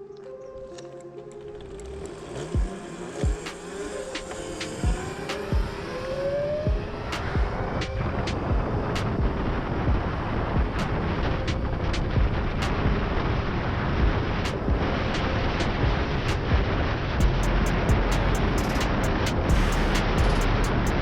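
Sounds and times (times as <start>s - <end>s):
electric motor whine: 1.3s - 8.9s
wind buffeting microphone: 2.2s - 21.0s.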